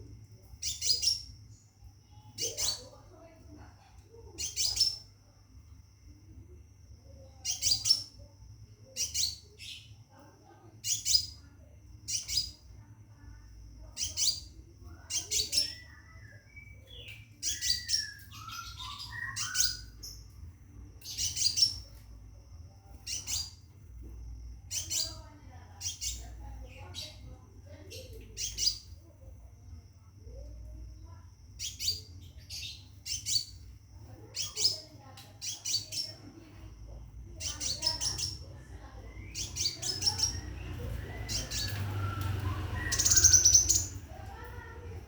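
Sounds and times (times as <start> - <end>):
bird sharp high chirps: 7.4 - 8.2, 13.9 - 20.3, 37.4 - 44.8.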